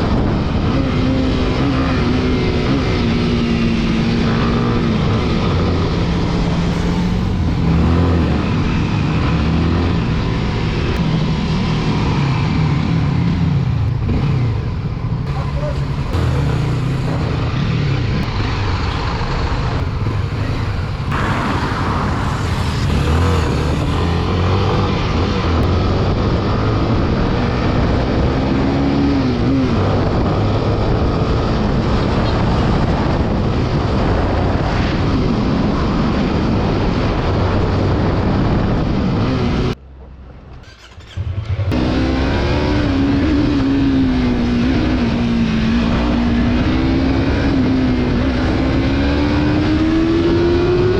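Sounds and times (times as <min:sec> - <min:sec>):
motorcycle engine running: 0:00.0 - 0:27.9
wind rushing over microphone: 0:00.0 - 0:40.5, 0:41.5 - 0:50.9.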